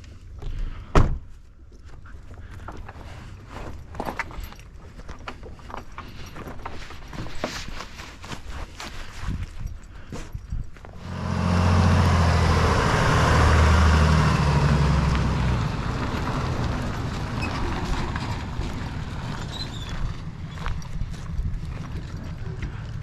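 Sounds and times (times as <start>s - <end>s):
footsteps: 5.0s - 23.0s
vehicle engine running: 10.9s - 23.0s.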